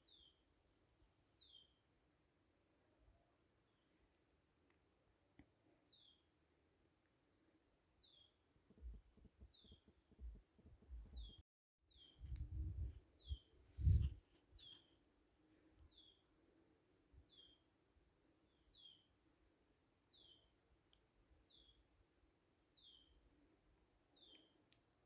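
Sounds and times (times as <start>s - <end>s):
low rumbling thumps: 12.2s - 13.0s.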